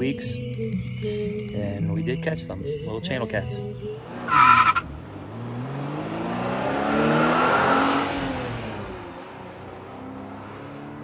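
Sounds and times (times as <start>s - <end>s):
car engine accelerating: 3.9s - 11.0s
car tyres squealing: 4.1s - 8.6s.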